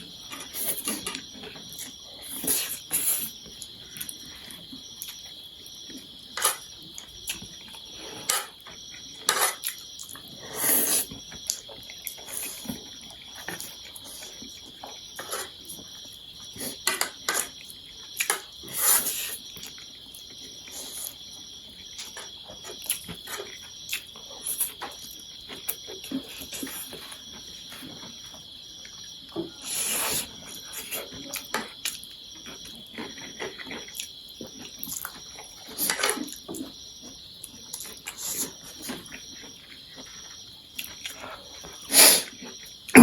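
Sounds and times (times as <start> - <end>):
chewing and slurping noodles: 29.6 - 36.8, 37.4 - 43.0.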